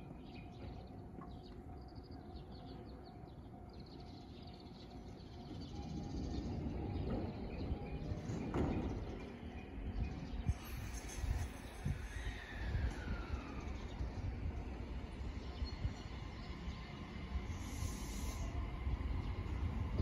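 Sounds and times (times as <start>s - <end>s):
electric train hum: 0.0s - 20.0s
train rumble: 4.9s - 20.0s.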